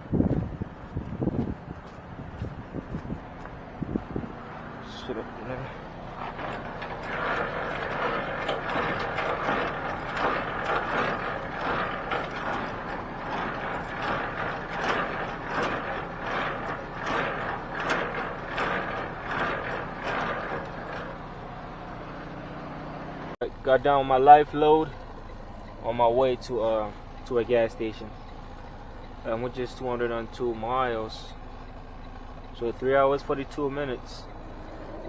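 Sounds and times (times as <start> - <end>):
hand crank ratcheting gear noise: 5.8 - 21.2.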